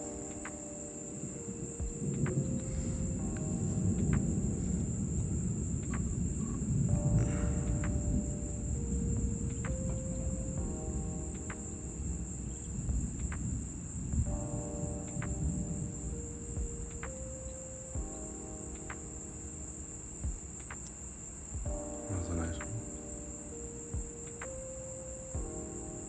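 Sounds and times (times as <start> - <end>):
night insects chorus: 0.0 - 26.0
sustained low musical notes: 1.1 - 20.6, 21.7 - 24.5
faint ticks: 12.9 - 13.8, 16.8 - 19.5, 20.4 - 23.2, 24.0 - 25.1.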